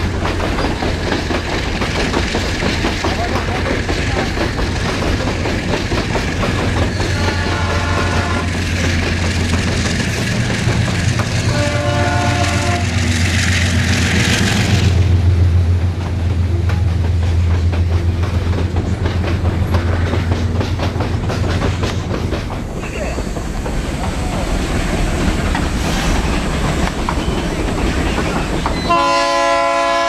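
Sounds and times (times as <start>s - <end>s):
wheels clicking over rail joints: 0.0s - 14.9s, 15.7s - 30.0s
locomotive rush of noise: 0.0s - 30.0s
locomotive air horn: 7.1s - 8.7s, 11.4s - 13.1s, 28.9s - 30.0s.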